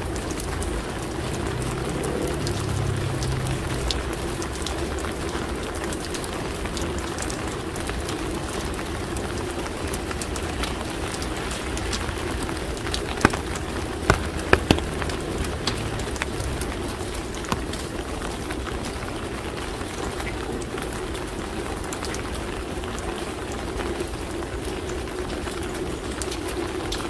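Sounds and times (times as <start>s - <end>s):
sharp water drips: 0.0s - 19.0s
rain pattering on surfaces: 0.0s - 27.0s.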